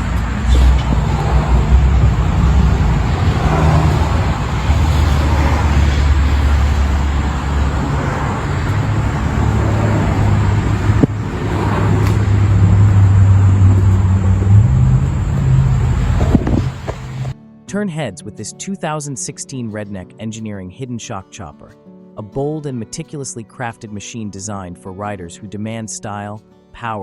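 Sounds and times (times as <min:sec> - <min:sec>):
motorcycle engine revving: 0:00.0 - 0:17.4.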